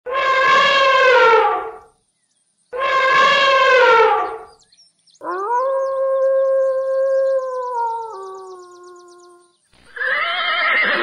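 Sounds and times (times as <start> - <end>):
elephant trumpeting: 0.1 - 1.8, 2.8 - 4.5
wolf howling: 5.2 - 9.4.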